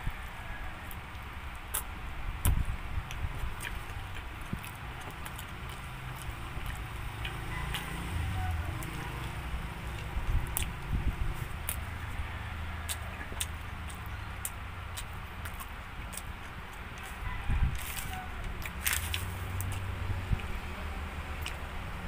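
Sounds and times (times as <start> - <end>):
person chewing food: 0.1 - 20.6, 21.4 - 21.7.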